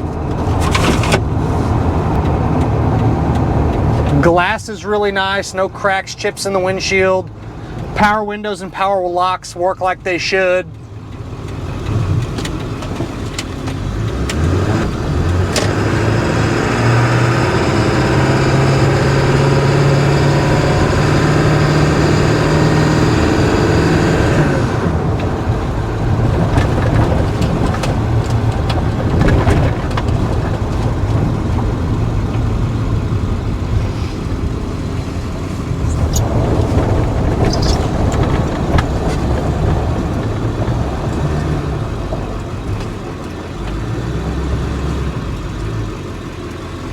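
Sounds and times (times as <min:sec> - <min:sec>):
diesel truck engine running: 0:00.0 - 0:46.9.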